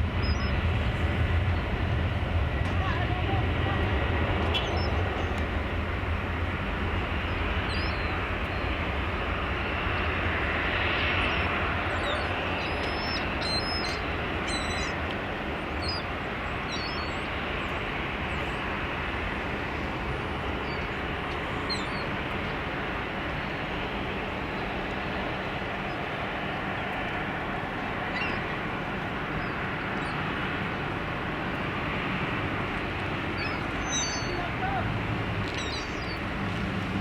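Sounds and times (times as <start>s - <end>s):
jet engine roar: 0.0s - 37.0s
small birds chirping: 0.2s - 0.6s, 7.2s - 8.7s, 11.2s - 15.0s, 15.6s - 18.6s, 33.3s - 34.8s, 35.5s - 36.3s.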